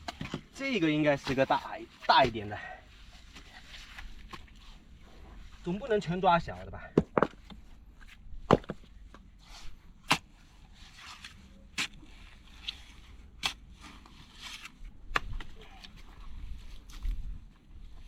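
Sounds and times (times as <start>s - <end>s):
scraping and digging in mud: 0.0s - 5.8s, 9.4s - 18.0s.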